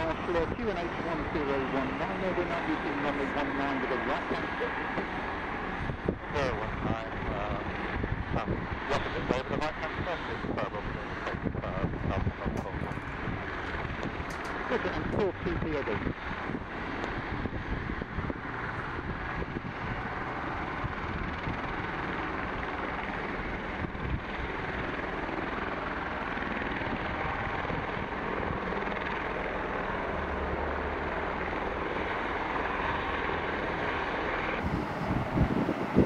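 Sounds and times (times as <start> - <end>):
helicopter engine and rotor: 0.0 - 36.0.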